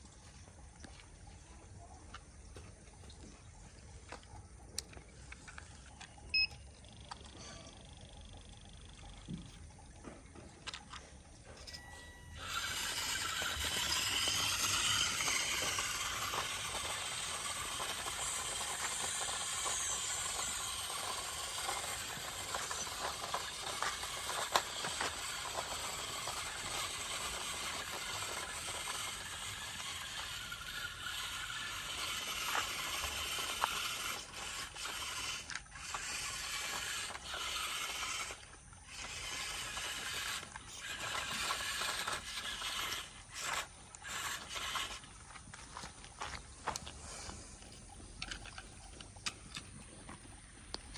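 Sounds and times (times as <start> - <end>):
toy electric motor whirring: 10.6 - 49.8.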